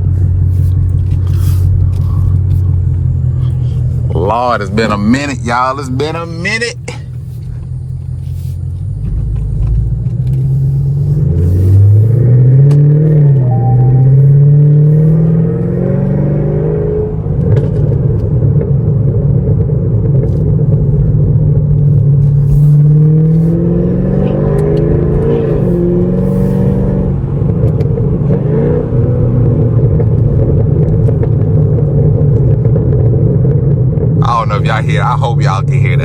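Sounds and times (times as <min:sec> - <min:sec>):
exhaust pops and crackles: 0:00.0 - 0:05.3, 0:06.8 - 0:13.4, 0:17.3 - 0:23.6, 0:29.2 - 0:36.0
car engine accelerating: 0:00.0 - 0:36.0.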